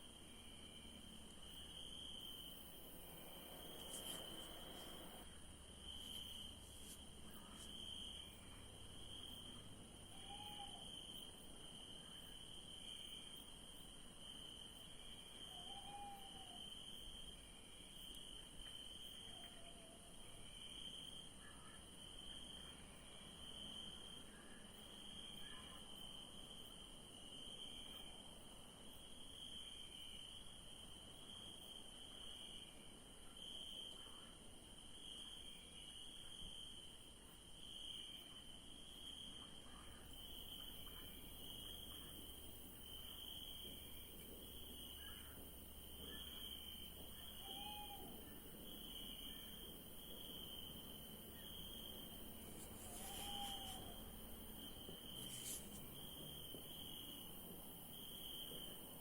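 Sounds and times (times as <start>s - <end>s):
crickets chirping: 0.0s - 59.0s
high continuous insect tone: 0.0s - 59.0s
short low arched calls: 52.8s - 54.0s.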